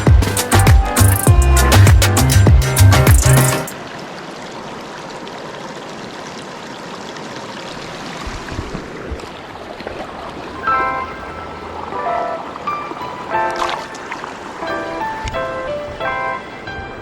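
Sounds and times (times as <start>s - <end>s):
stream flowing over rocks: 3.6s - 15.3s.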